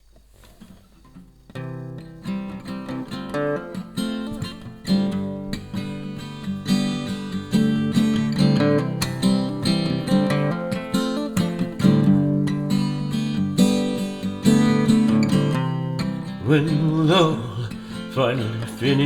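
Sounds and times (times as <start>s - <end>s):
acoustic guitar strumming: 0.6s - 19.0s.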